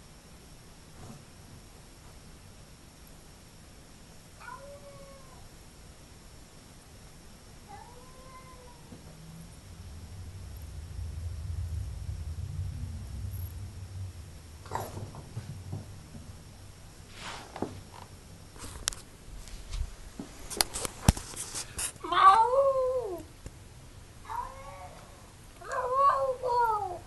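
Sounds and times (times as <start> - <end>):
cat meowing: 4.4 - 5.4, 7.7 - 9.0, 24.3 - 27.0.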